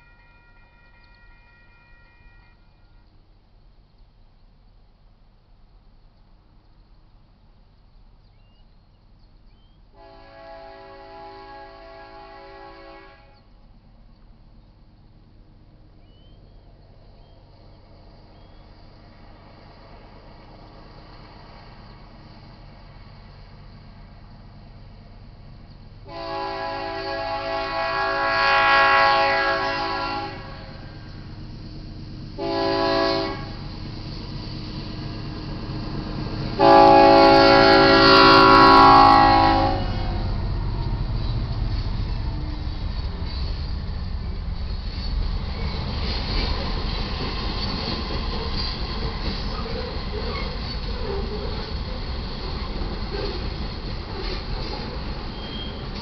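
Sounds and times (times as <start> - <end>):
locomotive air horn blasts: 0.0 - 3.1, 10.0 - 13.5, 26.0 - 31.0, 32.4 - 33.6, 36.6 - 40.4
diesel freight train rumble: 0.0 - 3.9, 4.5 - 56.0
bird chirping: 6.6 - 10.0, 16.0 - 18.8.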